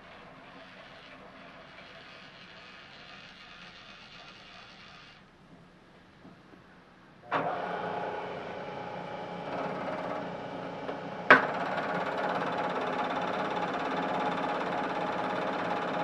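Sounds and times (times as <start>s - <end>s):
milling machine motor running: 7.3s - 16.0s.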